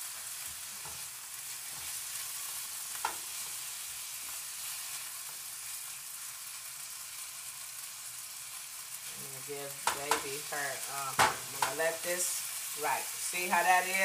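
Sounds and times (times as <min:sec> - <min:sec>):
chicken sizzling in frying pan: 0:00.0 - 0:14.0
utensil stirring food in pan: 0:00.0 - 0:14.0.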